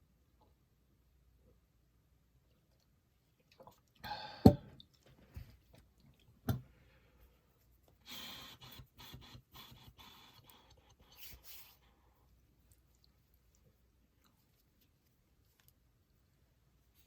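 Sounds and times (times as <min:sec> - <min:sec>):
person gulping water: 0:02.7 - 0:05.2.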